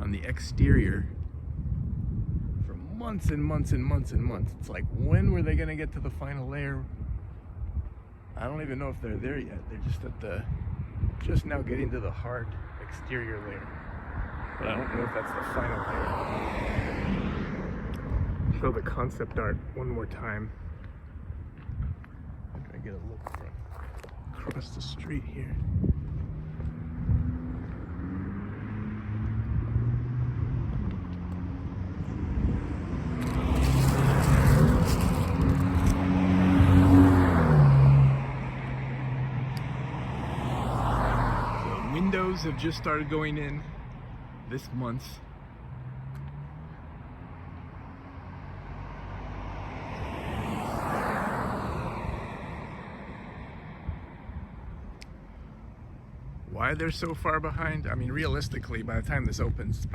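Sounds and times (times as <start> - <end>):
car approaching: 5.4 - 59.6
vehicle engines humming: 11.9 - 19.2, 20.5 - 58.2
tyre noise: 33.0 - 37.6.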